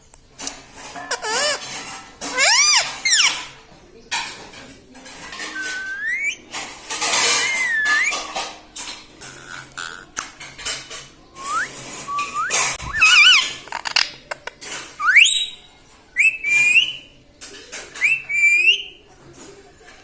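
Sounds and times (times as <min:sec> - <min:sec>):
parrot whistling: 0:05.6 - 0:06.4, 0:07.4 - 0:08.2, 0:11.4 - 0:13.5, 0:15.0 - 0:17.1, 0:18.0 - 0:19.0.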